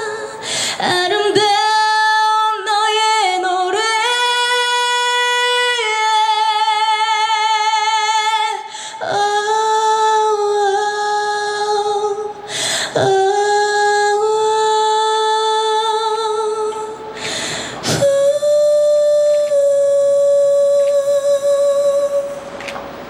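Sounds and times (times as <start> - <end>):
woman singing unaccompanied: 0.0 - 22.5
singer breathing: 0.3 - 0.8, 8.6 - 9.0, 12.4 - 13.0, 17.1 - 18.0.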